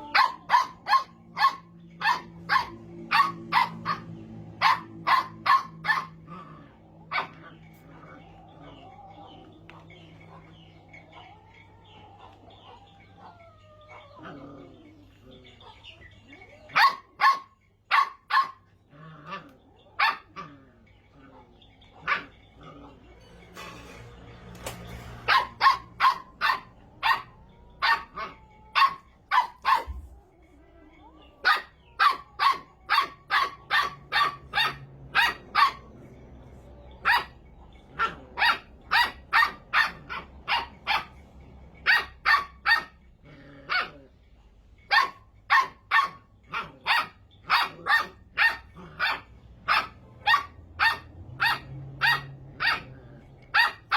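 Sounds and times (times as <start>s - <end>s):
puppy barking in sharp yaps: 28.8s - 30.0s.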